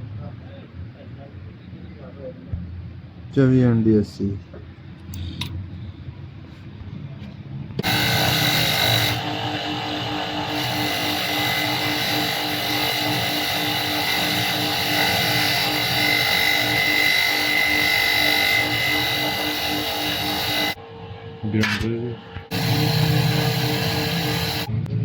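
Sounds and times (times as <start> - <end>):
machine motor whining: 7.8 - 24.7.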